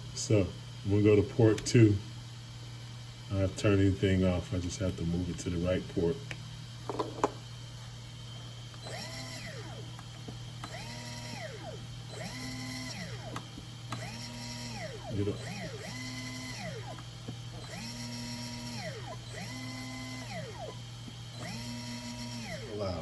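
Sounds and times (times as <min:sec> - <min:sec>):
electric motor whine revving: 0:08.8 - 0:10.0, 0:10.6 - 0:23.0.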